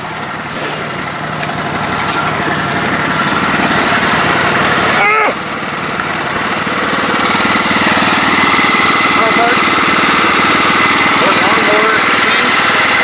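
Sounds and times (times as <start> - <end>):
riding lawn mower engine running: 0.0 - 13.0.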